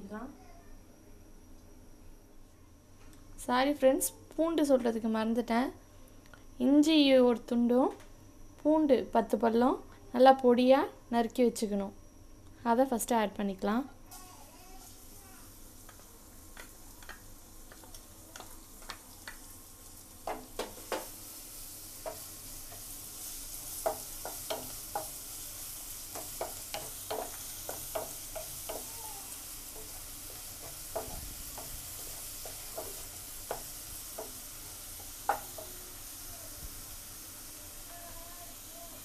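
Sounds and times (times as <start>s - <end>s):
garlic sizzling in hot oil: 14.8s - 39.0s
spatula tapping and scraping pan: 20.2s - 21.1s, 22.0s - 22.9s, 23.7s - 25.3s, 26.1s - 29.0s, 29.7s - 35.8s.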